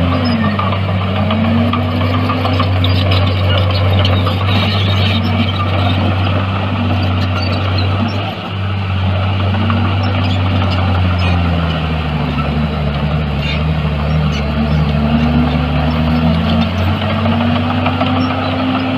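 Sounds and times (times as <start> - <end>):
diesel engine under load: 0.0 - 18.9.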